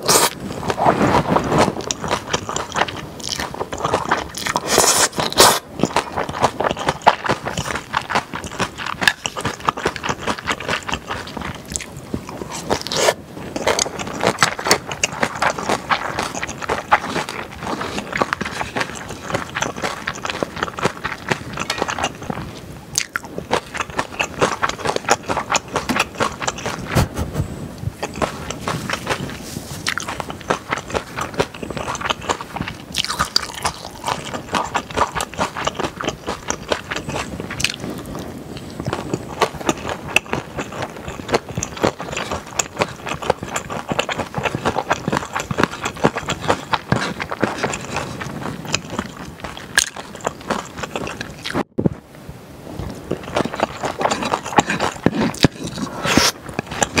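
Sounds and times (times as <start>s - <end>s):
wet chewing mouth sounds: 0.0s - 51.8s, 52.8s - 57.0s
fork scraping a bowl: 21.4s - 22.4s, 53.2s - 57.0s.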